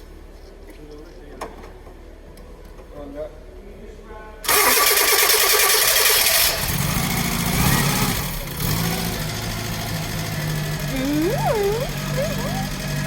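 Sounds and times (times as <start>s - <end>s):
engine starter cranking: 4.5s - 7.2s
car engine idling: 6.7s - 13.0s.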